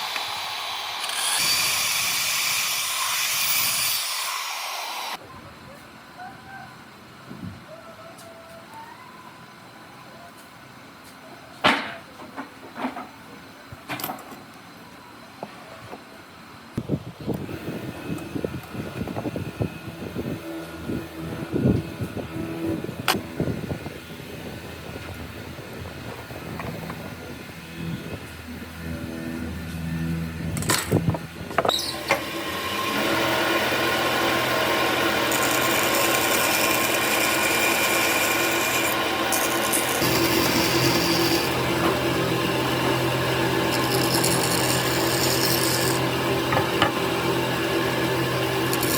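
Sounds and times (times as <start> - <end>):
power tool running: 0.0 - 5.2, 17.3 - 48.9.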